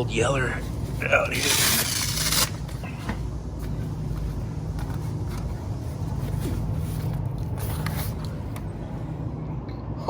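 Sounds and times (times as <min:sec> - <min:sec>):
refrigeration machinery hum: 0:00.0 - 0:10.0.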